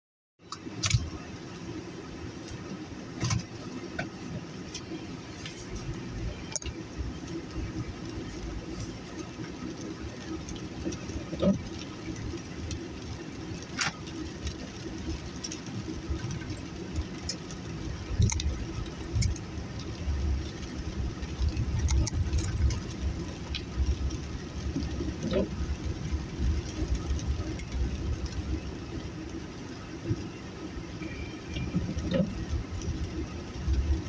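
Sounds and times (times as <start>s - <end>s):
engine and road rumble: 0.4s - 34.0s.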